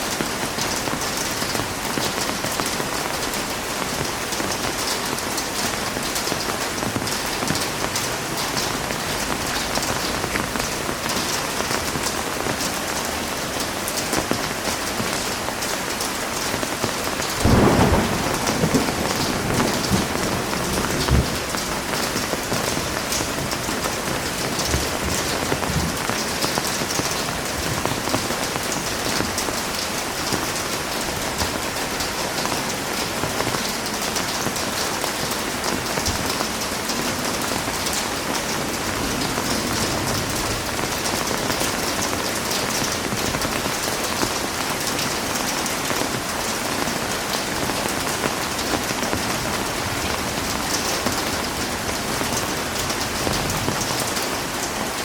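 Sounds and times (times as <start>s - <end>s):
heavy rain pattering: 0.0s - 55.0s.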